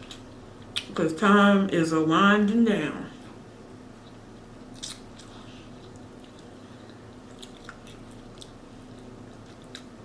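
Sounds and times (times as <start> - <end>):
person chewing food: 0.0 - 0.9, 3.7 - 10.0
faint steady hum: 0.0 - 10.0.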